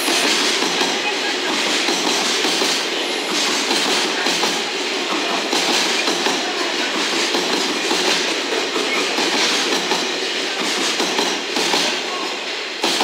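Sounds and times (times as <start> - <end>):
freight train wheels rattling on rails: 0.0 - 13.0.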